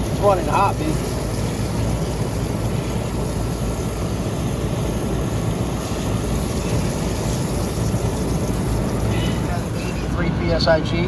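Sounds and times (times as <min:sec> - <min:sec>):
condenser fan rushing: 0:00.0 - 0:11.0.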